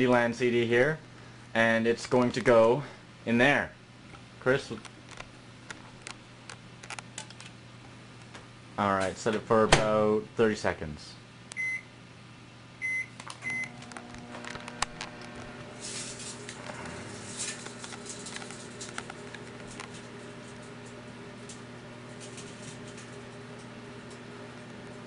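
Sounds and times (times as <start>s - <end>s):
microwave oven humming: 0.0s - 25.0s
microwave keypad beeps: 11.6s - 11.9s, 12.8s - 13.8s
metal sparking and crackling: 14.0s - 24.2s.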